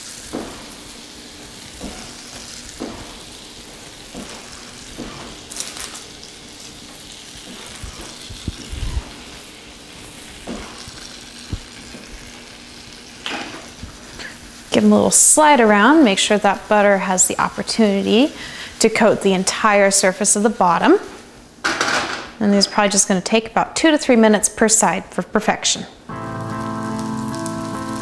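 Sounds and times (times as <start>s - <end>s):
meat sizzling in butter: 0.0s - 20.6s, 26.1s - 28.0s.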